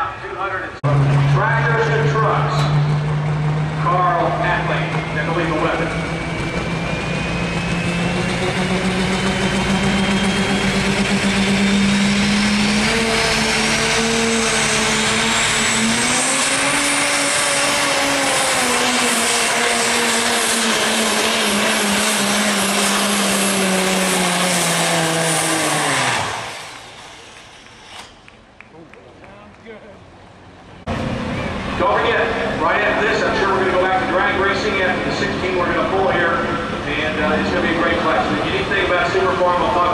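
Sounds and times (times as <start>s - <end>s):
diesel engine at full throttle: 0.0s - 28.8s, 30.0s - 39.9s
turbocharger whistle: 0.9s - 28.4s.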